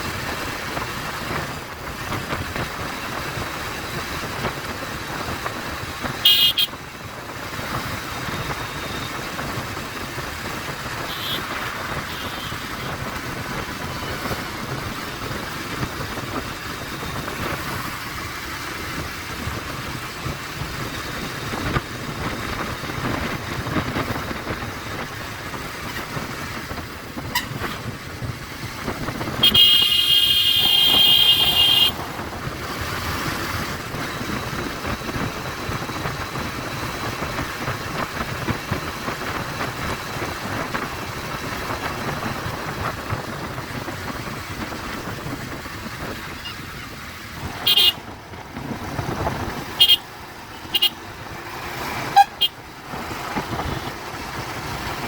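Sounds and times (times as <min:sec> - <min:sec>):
motorcycle wind and road noise: 0:00.0 - 0:55.0
vehicle horn: 0:06.2 - 0:06.7, 0:11.0 - 0:12.9, 0:27.3 - 0:27.8, 0:29.4 - 0:32.0, 0:47.6 - 0:48.0, 0:49.8 - 0:51.0, 0:52.1 - 0:52.6.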